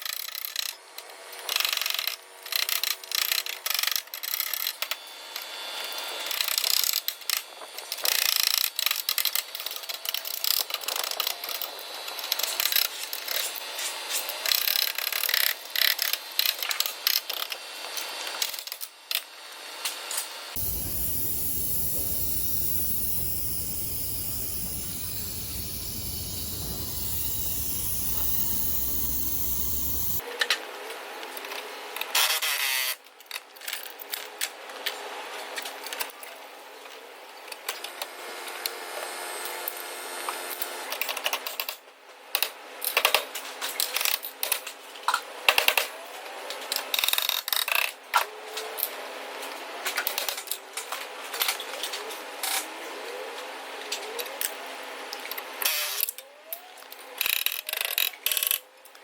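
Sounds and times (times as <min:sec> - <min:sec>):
steady machine sound: 0:14.4 - 0:30.2.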